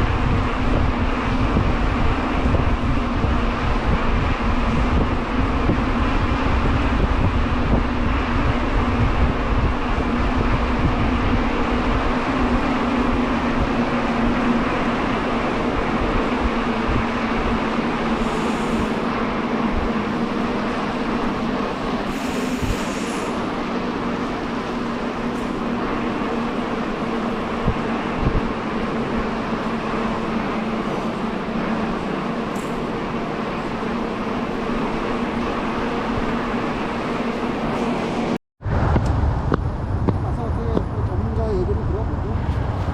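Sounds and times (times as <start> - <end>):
wind buffeting microphone: 0.0 - 42.9
short hissing bursts: 18.2 - 19.0, 22.1 - 23.4
constant low hum: 38.7 - 42.9.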